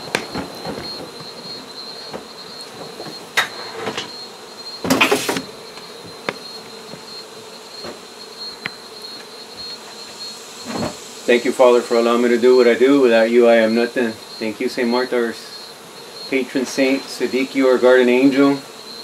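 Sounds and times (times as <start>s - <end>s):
sharp knocks and rustles: 0.0s - 11.1s
honey bees buzzing: 0.0s - 19.0s.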